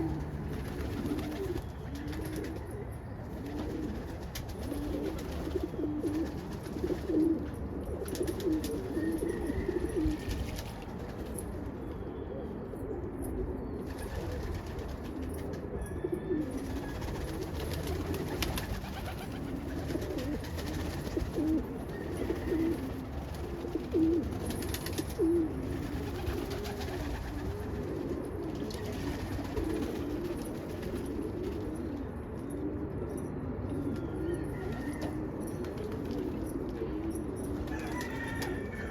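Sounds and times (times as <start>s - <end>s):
pigeons cooing: 0.0s - 38.9s.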